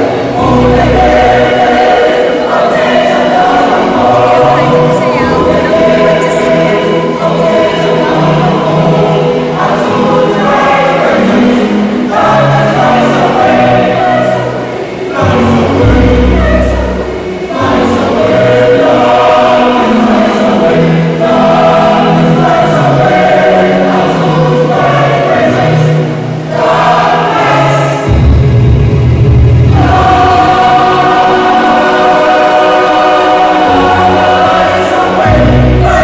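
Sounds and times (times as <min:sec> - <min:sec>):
choir singing: 0:00.0 - 0:36.0
deep bass notes: 0:28.1 - 0:31.0.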